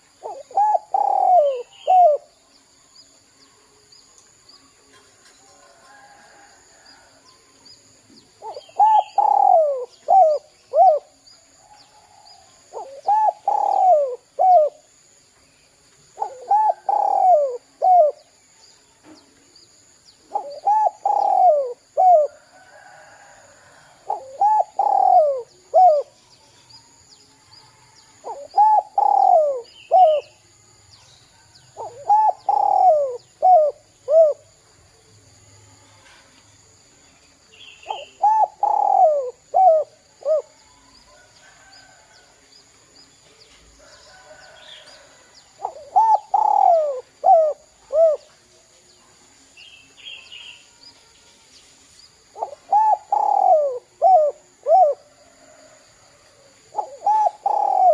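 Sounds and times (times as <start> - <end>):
dove cooing: 0.0 - 2.3, 8.4 - 11.2, 11.9 - 15.0, 16.1 - 18.4, 20.3 - 22.7, 23.8 - 26.2, 28.2 - 30.4, 31.8 - 34.5, 37.8 - 40.8, 44.4 - 48.4, 52.3 - 55.6, 56.7 - 57.9.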